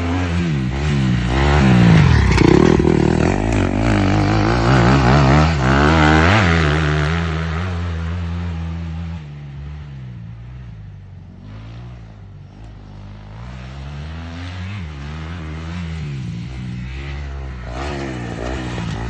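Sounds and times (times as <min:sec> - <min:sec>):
dirt bike engine revving: 0:00.0 - 0:08.7, 0:14.2 - 0:19.0.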